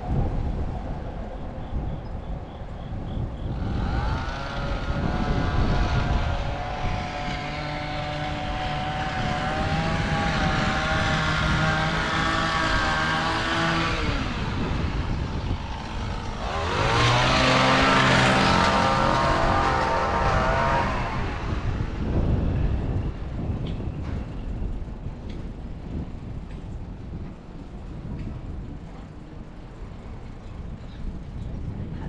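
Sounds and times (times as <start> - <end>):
traffic noise: 0.0 - 32.0
vehicle passing by: 2.9 - 23.2.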